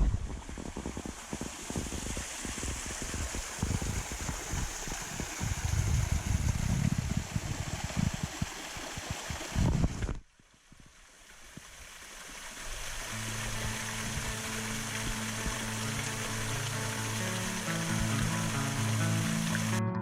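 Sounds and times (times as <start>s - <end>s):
waterfall rushing: 0.0s - 9.7s, 12.0s - 19.8s
wind buffeting microphone: 0.0s - 10.2s.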